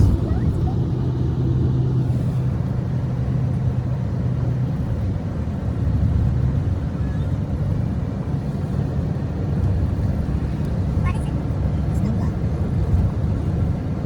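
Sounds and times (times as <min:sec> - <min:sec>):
low hum: 0:00.0 - 0:11.0
car engine: 0:00.0 - 0:14.0
road rumble: 0:00.0 - 0:14.0.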